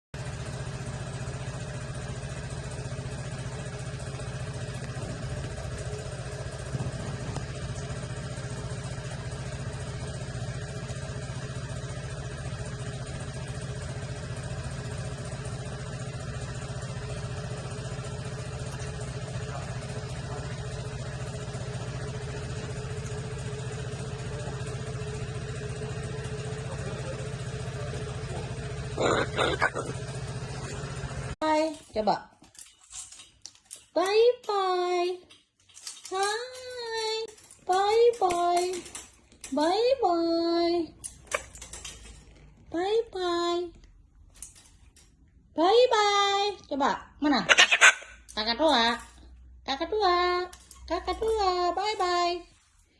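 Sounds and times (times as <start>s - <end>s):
motor humming with tones: 0.2s - 32.1s.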